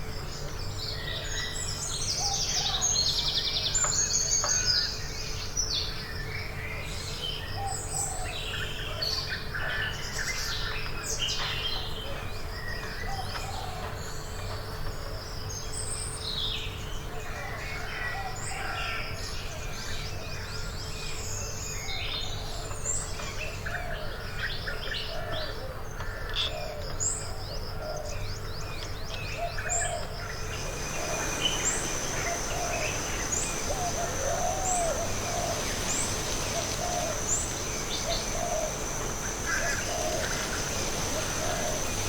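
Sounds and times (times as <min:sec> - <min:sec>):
high whine with chirps: 0:30.2 - 0:42.0
high bird chirps and trills: 0:30.3 - 0:42.0
low bird call: 0:30.3 - 0:42.0.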